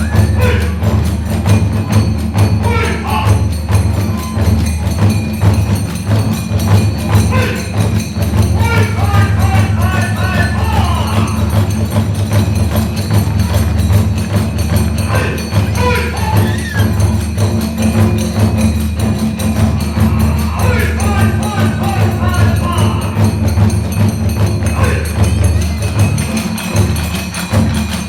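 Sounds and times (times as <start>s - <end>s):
bamboo flute melody: 0.0s - 5.8s, 15.1s - 17.6s
hand cymbals clashing: 0.0s - 28.0s
taiko drums: 0.0s - 28.0s.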